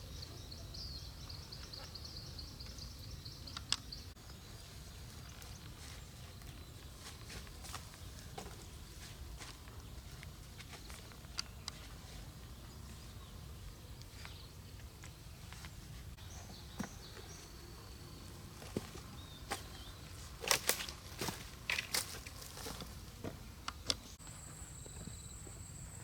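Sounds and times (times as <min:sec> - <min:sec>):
sharp snaps and crackles: 0:20.4 - 0:22.9.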